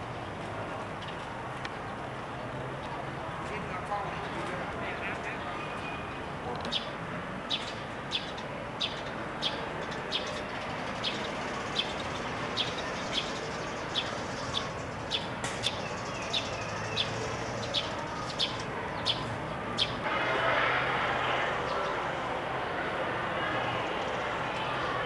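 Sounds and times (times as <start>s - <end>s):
bird chirping: 7.5s - 20.0s.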